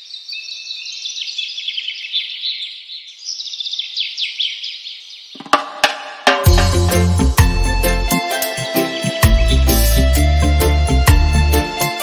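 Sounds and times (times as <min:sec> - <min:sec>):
birds chirping and calling: 0:00.0 - 0:05.6
music with drums: 0:05.4 - 0:12.0.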